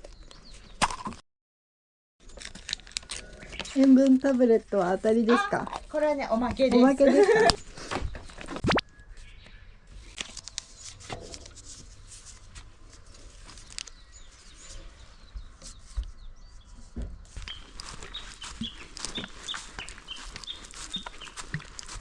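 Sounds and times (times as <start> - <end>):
bird chirping: 13.2 - 22.0.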